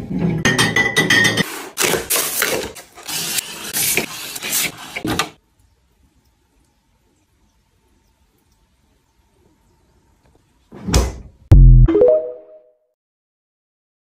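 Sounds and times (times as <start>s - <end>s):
kitchen items scraping and knocking: 0.0s - 5.4s.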